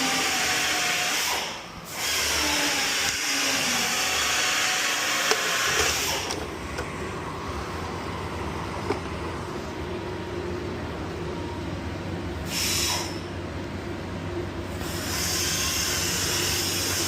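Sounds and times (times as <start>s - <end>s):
low machine hum: 1.6s - 17.0s
air hissing: 12.4s - 13.3s.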